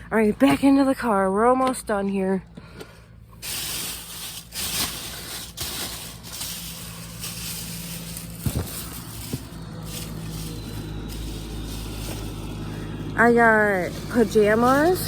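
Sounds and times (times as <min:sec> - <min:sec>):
items rustling: 0:02.6 - 0:15.0.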